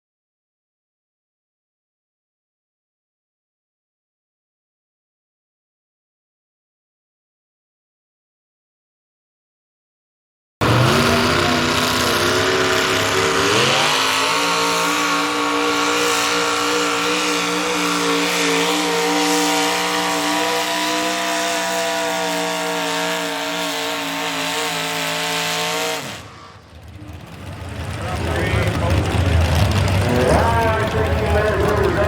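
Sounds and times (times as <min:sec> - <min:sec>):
truck engine at full throttle: 0:10.6 - 0:32.0.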